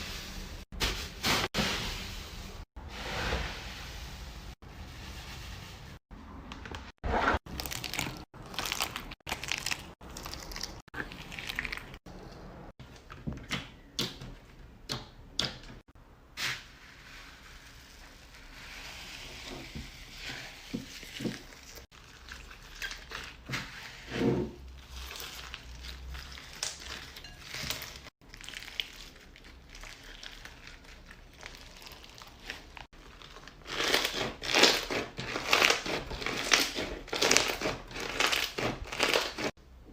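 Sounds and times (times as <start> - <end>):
slime crackling: 7.5 - 12.0.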